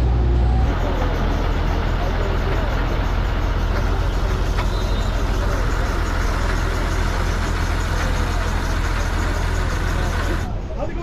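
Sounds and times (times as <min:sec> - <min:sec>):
truck diesel engine rumbling: 0:00.0 - 0:10.9.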